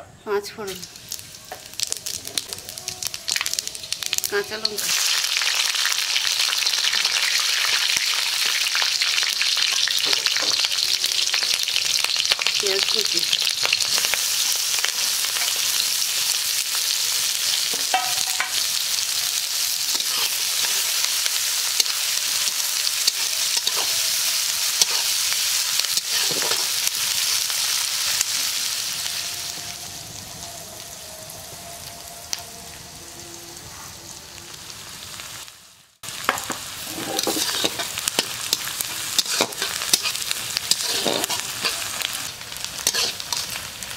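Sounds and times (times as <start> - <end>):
vegetables sizzling in hot oil: 0.2 - 33.0, 33.9 - 43.9
spatula clicking and scraping: 37.0 - 41.8, 42.8 - 43.5.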